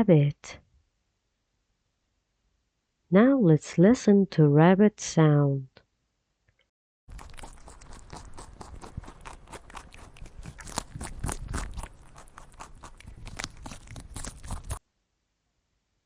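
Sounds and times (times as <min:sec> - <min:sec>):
rabbit crunching food: 0:07.1 - 0:14.8.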